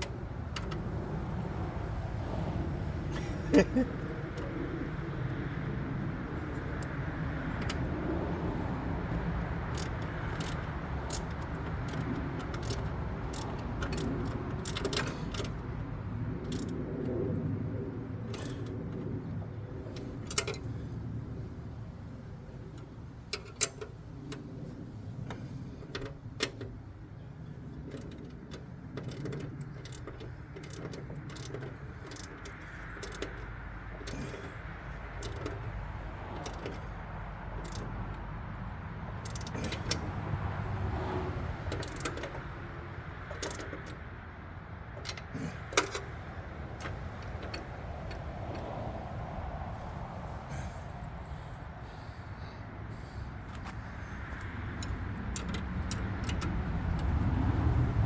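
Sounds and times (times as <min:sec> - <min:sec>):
steady low rumble: 0:44.0 - 0:58.0.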